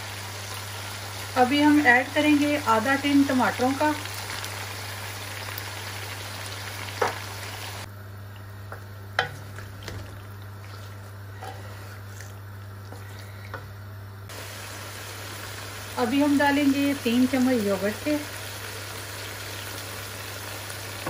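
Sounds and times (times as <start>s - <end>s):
chicken and tomatoes sizzling: 0.0s - 21.0s.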